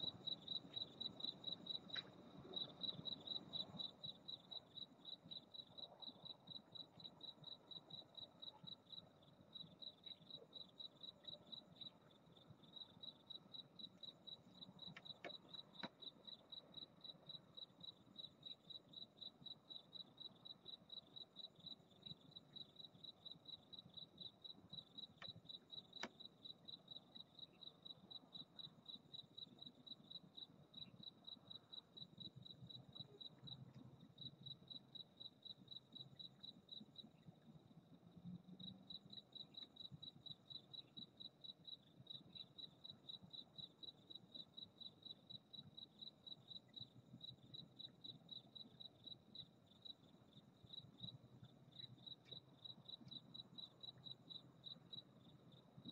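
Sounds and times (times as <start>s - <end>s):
cricket chirping: 0.0s - 55.9s.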